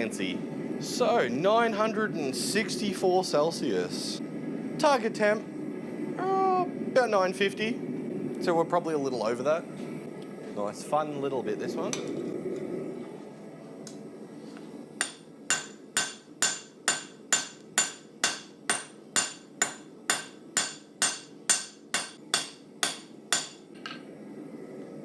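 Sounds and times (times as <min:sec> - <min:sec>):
hammer striking steel on anvil: 0:15.0 - 0:23.7.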